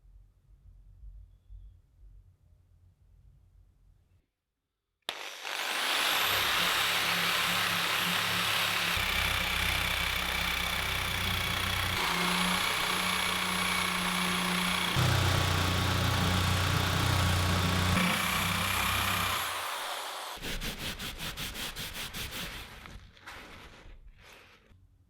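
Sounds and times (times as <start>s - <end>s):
power tool motor whining: 5.1s - 20.4s.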